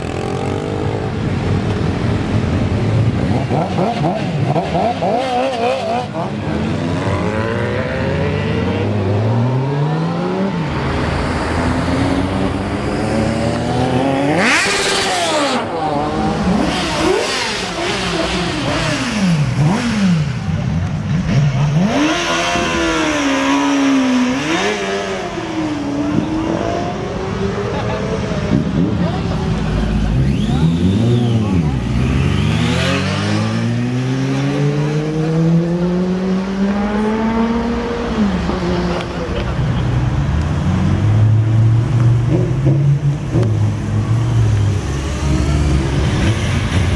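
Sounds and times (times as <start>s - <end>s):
motorcycle engines revving: 0.0s - 46.9s.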